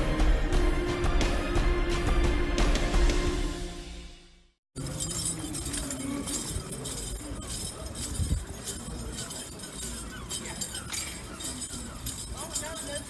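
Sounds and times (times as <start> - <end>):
light metallic clinking and tapping: 4.8 - 13.0.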